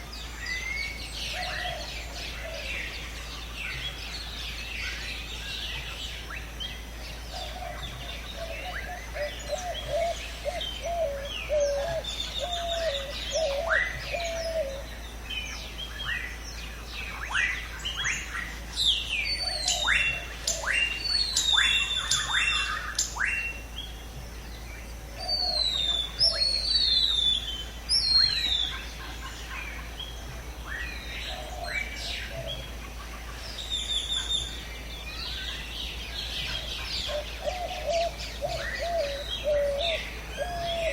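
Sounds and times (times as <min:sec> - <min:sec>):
low warbling bird call: 0:07.3 - 0:24.0, 0:25.1 - 0:40.9
bird chirps and whistles: 0:19.3 - 0:23.6, 0:25.3 - 0:28.8.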